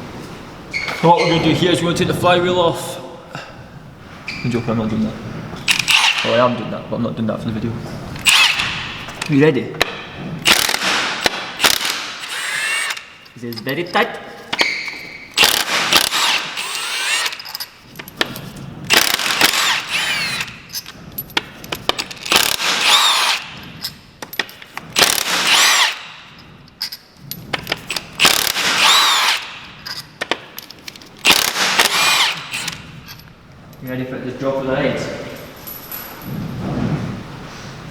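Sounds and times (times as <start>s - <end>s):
impact wrench bursts: 5.7s - 6.5s, 8.2s - 9.2s, 10.4s - 13.4s, 14.5s - 20.9s, 21.8s - 24.0s, 24.7s - 26.4s, 27.6s - 33.2s.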